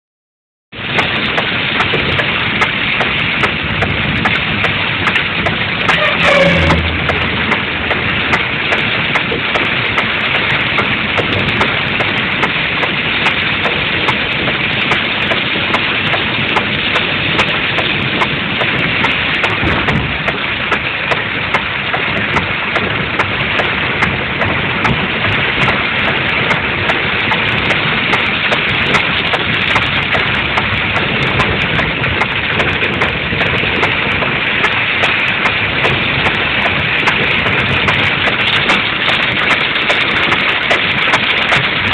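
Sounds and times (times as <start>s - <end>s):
rain on a moving car: 0.7s - 41.9s
road noise: 0.7s - 41.9s
car engine: 0.9s - 17.3s.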